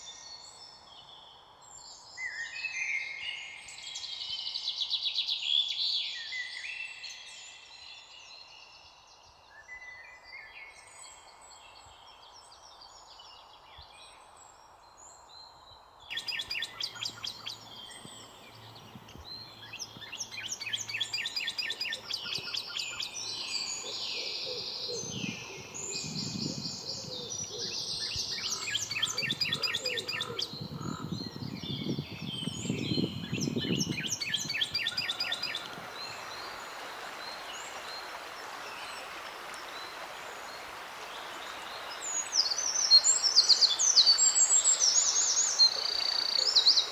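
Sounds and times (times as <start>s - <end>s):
songbirds chirping and singing: 15.1s - 36.6s, 41.9s - 46.9s.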